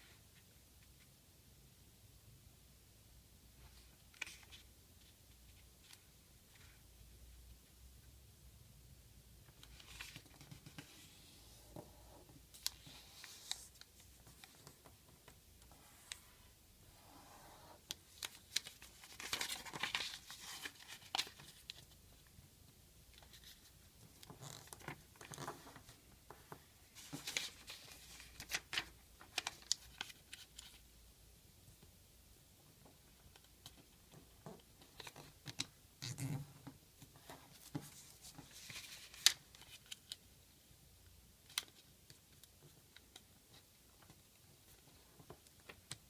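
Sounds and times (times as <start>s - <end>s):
paper crinkling and snapping: 17.9s - 21.8s.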